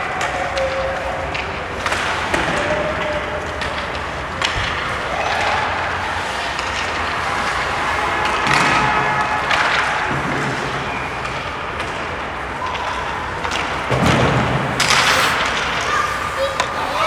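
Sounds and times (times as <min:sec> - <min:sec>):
skates on ice: 0:11.2 - 0:17.0
faint voices: 0:12.5 - 0:17.0
puck and sticks hitting boards: 0:13.2 - 0:17.0.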